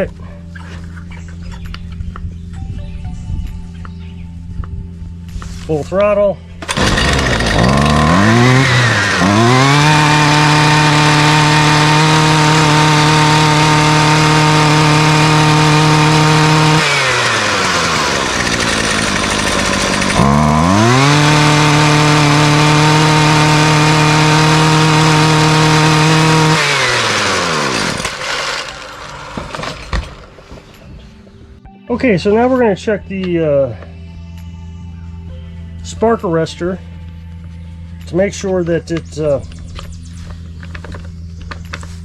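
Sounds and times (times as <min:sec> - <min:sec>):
string trimmer engine revving: 0:06.6 - 0:29.8.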